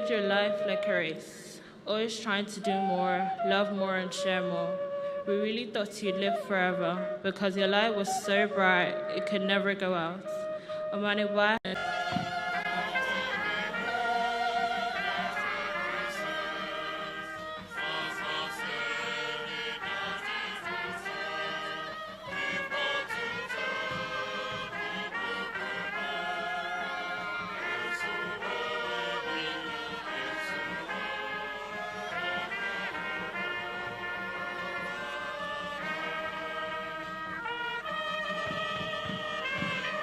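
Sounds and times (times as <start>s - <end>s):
brass instruments: 2.4s - 40.0s
choir singing held notes: 11.7s - 40.0s.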